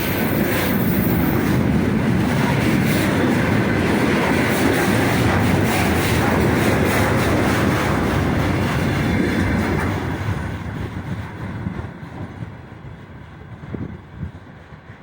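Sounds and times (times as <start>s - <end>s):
freight train wheels clattering: 0.0s - 15.0s.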